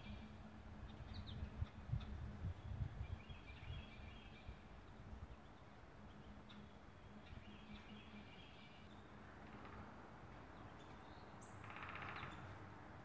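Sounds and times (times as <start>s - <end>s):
songbird twittering: 0.0s - 9.2s.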